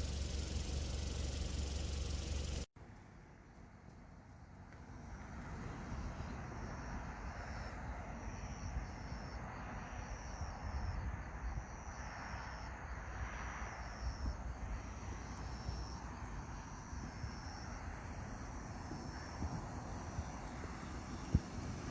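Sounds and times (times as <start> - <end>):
crickets chirping: 0.0 - 2.7, 4.3 - 21.9
wind on microphone: 18.8 - 21.9.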